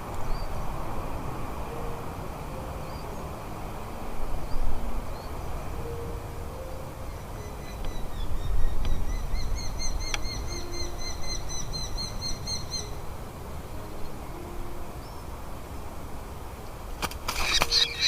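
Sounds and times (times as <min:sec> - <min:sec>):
bird calling in high notes: 0:17.4 - 0:18.0.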